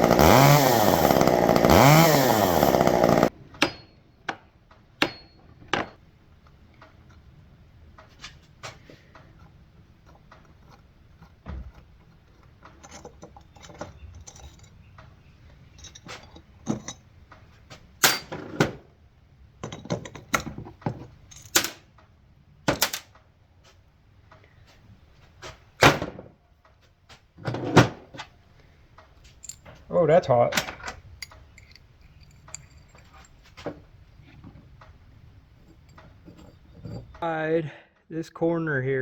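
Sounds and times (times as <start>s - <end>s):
metallic clicks of hand tools: 29.0s - 29.8s, 30.5s - 33.4s.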